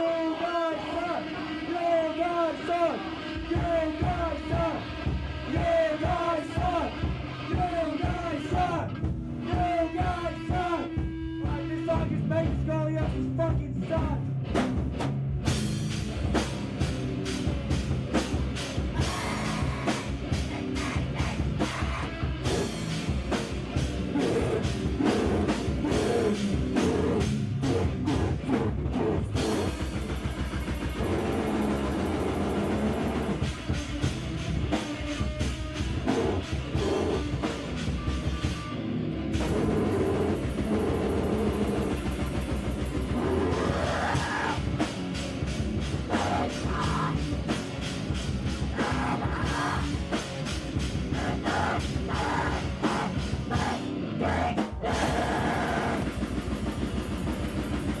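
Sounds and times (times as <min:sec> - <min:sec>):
heavy rock band playing: 0:00.0 - 0:58.0
fast drumbeat: 0:14.0 - 0:38.7, 0:39.4 - 0:58.0.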